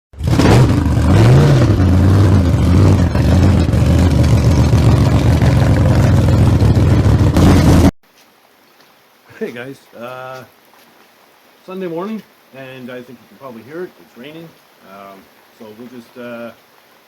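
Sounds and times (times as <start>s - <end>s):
loud engine revving: 0.2s - 8.0s.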